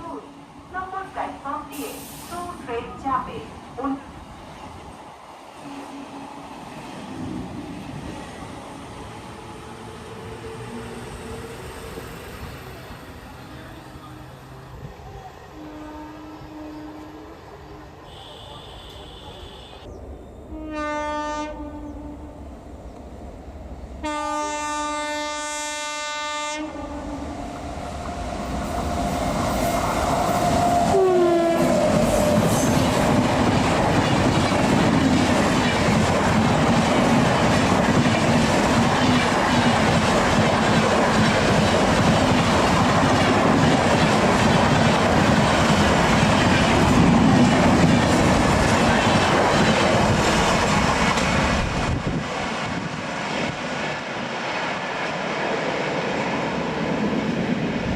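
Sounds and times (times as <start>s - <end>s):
train running through at speed: 0.0s - 57.9s
train horn blasts: 5.6s - 6.3s, 15.5s - 17.4s, 18.0s - 19.9s, 20.5s - 22.4s, 24.0s - 27.3s, 30.9s - 32.8s.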